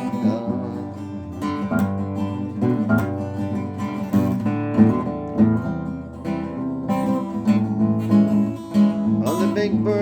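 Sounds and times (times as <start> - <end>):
person singing: 0.0 - 1.3, 9.2 - 10.0
acoustic guitar strumming: 0.0 - 10.0.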